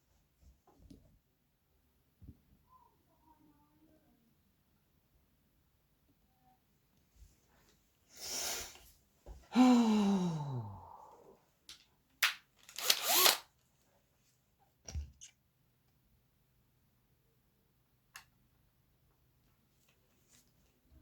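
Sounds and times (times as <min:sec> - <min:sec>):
breathy rush: 0:09.5 - 0:11.4
man sighing: 0:09.5 - 0:11.4.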